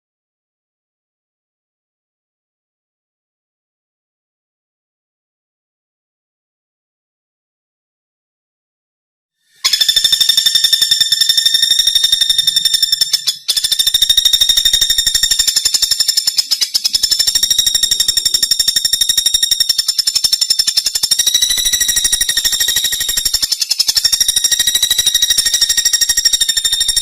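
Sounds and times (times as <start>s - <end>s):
woodpecker rattling trill: 9.6s - 27.0s.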